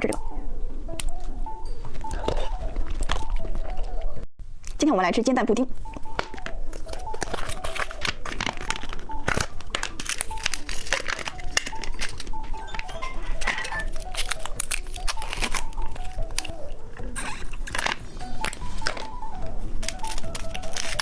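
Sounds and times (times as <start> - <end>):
light background music: 0.0 - 4.2, 4.8 - 21.0
plastic packaging crinkling: 6.1 - 21.0.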